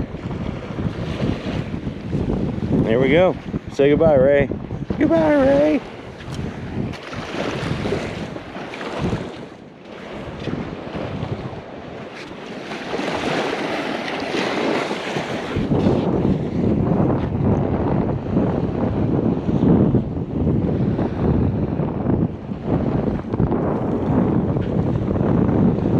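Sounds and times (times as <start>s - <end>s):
wind buffeting microphone: 0.0s - 25.9s
surf breaking: 4.9s - 17.4s.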